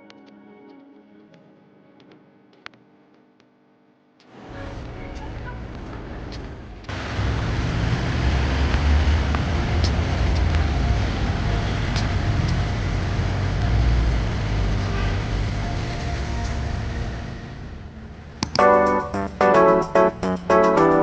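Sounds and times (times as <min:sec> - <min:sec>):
road vehicle rumble with hiss: 0:04.4 - 0:18.4.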